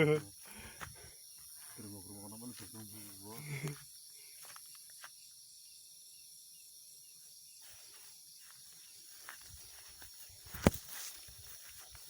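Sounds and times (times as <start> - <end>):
insects chirring: 0.0 - 12.0
small ticks: 3.5 - 5.1.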